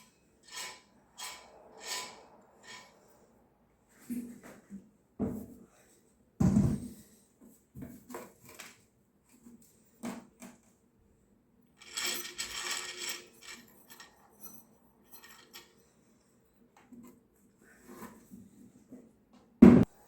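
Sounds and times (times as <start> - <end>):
small parts clicking and tapping: 11.8 - 15.7
metallic clatter: 11.8 - 15.8.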